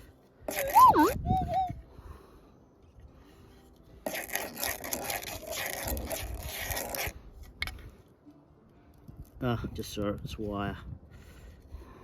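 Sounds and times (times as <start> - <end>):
digging stony dirt: 0.0 - 1.7, 2.8 - 8.2.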